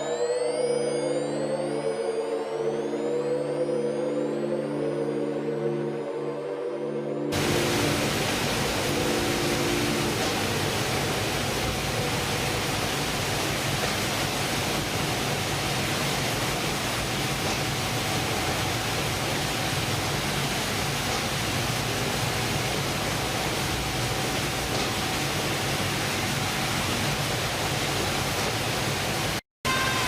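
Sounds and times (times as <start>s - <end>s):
low hum of machinery: 7.3s - 30.0s
water rushing: 7.3s - 30.0s
faint high tone: 29.7s - 30.0s.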